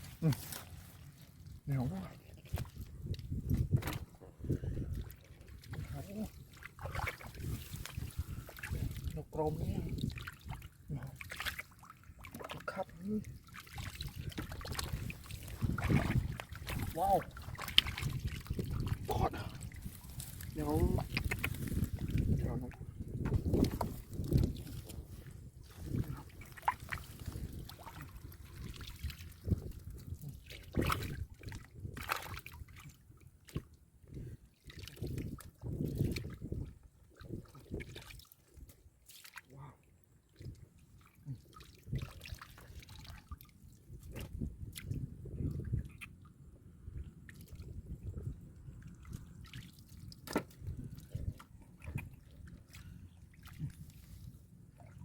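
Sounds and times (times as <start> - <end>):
hands squelching wet mud: 0.0 - 33.8, 37.1 - 46.3
muddy water sloshing and splashing: 0.0 - 55.0.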